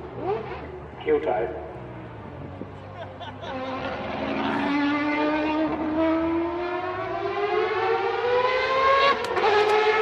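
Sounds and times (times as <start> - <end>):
racing engine accelerating: 3.4 - 10.0.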